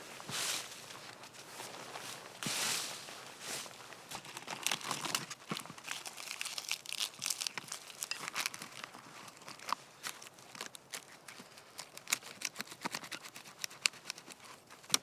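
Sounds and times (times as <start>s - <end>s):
dry leaves crackling and tearing: 2.4s - 15.0s.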